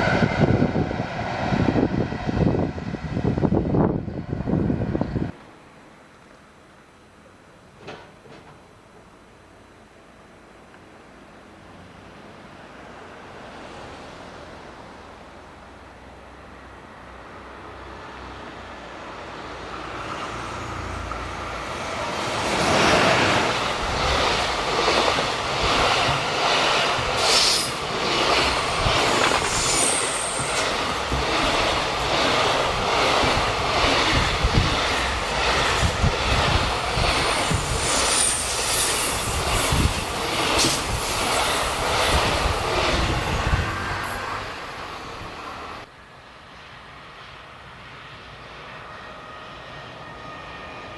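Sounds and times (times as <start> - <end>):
train wheels clattering: 22.6 - 44.4
high wheel squeals: 25.6 - 35.1, 37.0 - 45.9.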